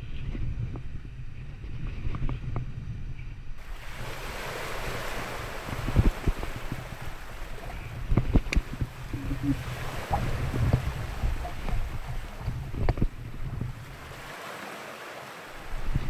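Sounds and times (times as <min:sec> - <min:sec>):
wind buffeting microphone: 0:00.0 - 0:16.0
short thumps: 0:03.6 - 0:14.1
ocean surf washing ashore: 0:03.6 - 0:16.0.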